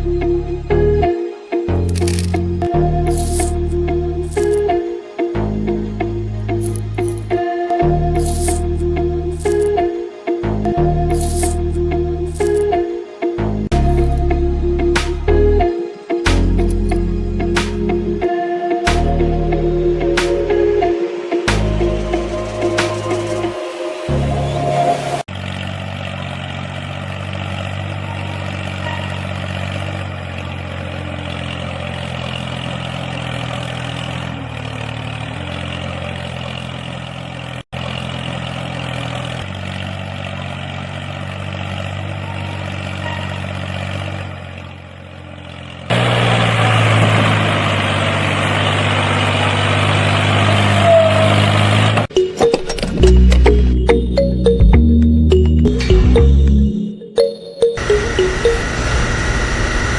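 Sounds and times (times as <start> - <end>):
engine idling: 25.3 - 50.6.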